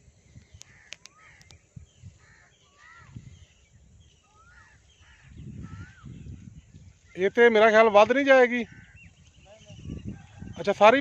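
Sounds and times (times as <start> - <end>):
bird calling: 0.4 - 6.4.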